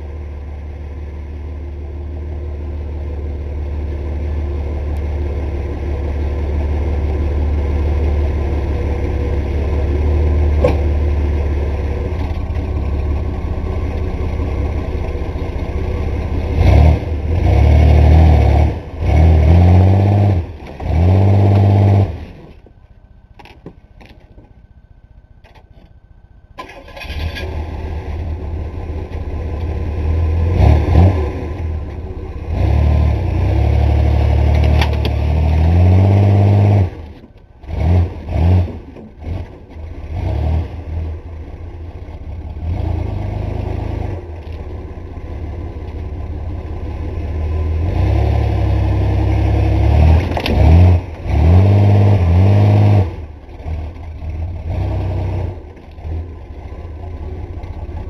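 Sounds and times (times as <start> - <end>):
pickup truck engine revving: 5.9 - 22.4, 29.9 - 41.2, 47.3 - 56.2.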